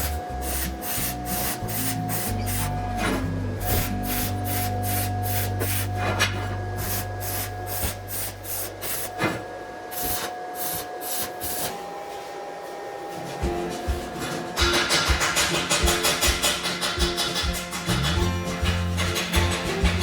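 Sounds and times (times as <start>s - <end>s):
background music: 0.0s - 8.1s, 13.4s - 20.0s
hand tool scraping metal: 0.0s - 9.4s.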